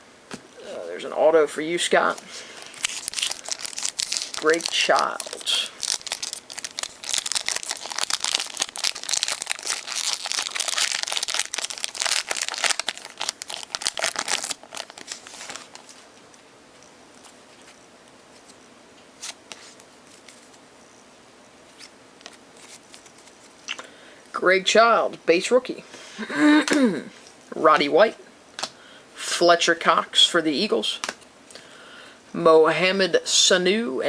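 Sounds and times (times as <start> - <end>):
foil wrapper tearing and crinkling: 2.6 - 16.0.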